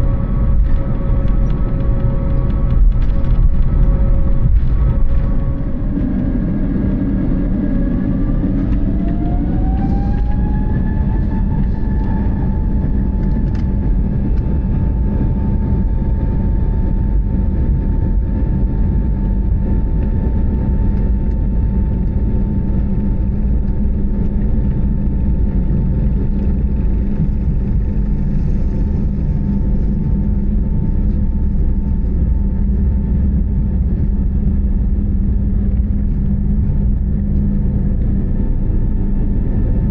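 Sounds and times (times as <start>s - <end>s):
jet engines spooling up: 0.0s - 16.2s
loud low rumble: 0.0s - 39.9s.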